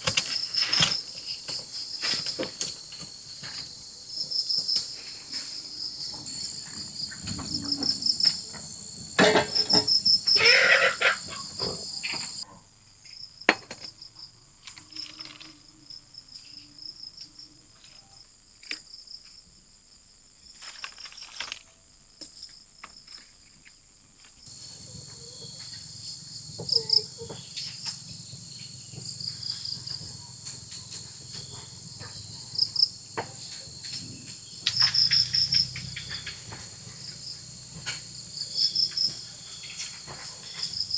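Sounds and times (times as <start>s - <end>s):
knocks and clatter of handling: 0.0s - 10.1s, 39.0s - 40.9s
crickets chirping: 0.0s - 40.9s.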